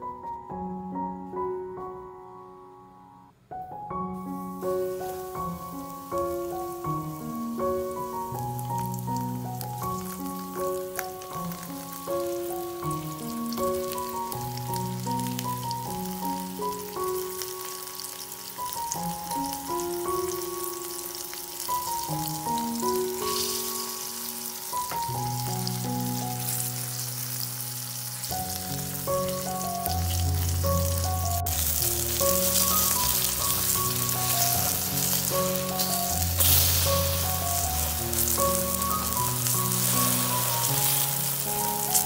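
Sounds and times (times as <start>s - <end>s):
background music: 0.0s - 42.0s
oil sizzling in a pan: 4.2s - 42.0s.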